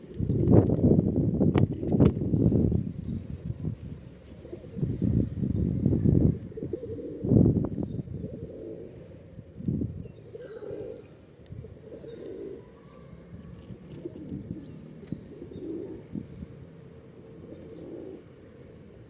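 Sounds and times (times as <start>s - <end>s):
pigeons cooing: 4.2s - 16.4s, 17.2s - 19.0s
small birds chirping: 7.7s - 8.4s, 10.0s - 11.2s, 13.9s - 16.0s.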